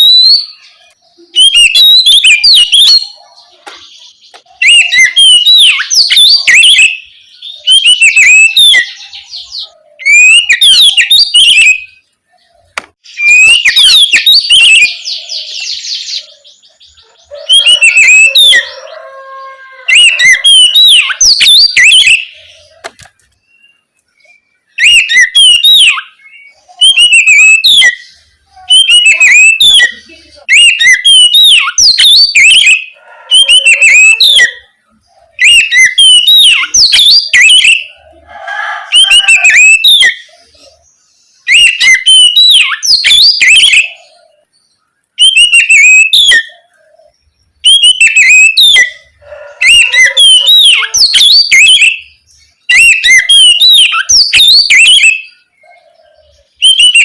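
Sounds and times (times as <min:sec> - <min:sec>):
bird singing whistled notes: 0:00.0 - 0:12.1, 0:13.0 - 0:34.7, 0:35.3 - 0:57.0.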